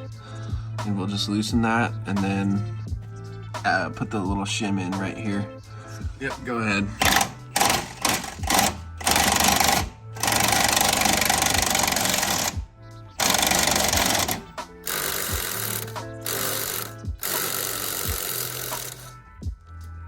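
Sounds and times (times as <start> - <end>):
impact wrench hammering: 7.0 - 12.6, 13.2 - 19.2.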